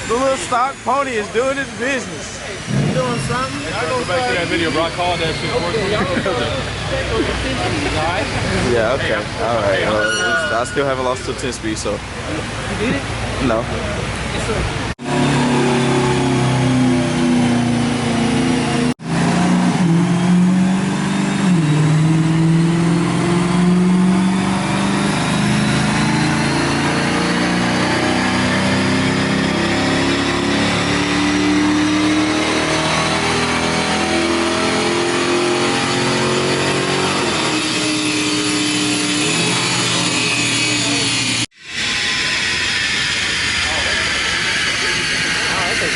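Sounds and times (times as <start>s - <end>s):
car engine under load: 0.0s - 9.9s.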